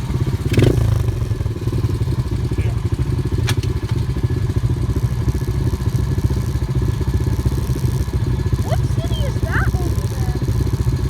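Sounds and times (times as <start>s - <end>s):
vehicle engine running: 0.0s - 11.0s
person speaking: 8.7s - 10.5s.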